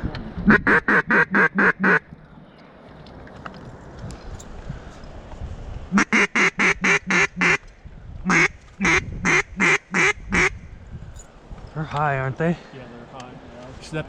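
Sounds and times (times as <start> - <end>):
duck quacking: 0.5 - 2.0, 5.9 - 7.6, 8.3 - 10.6.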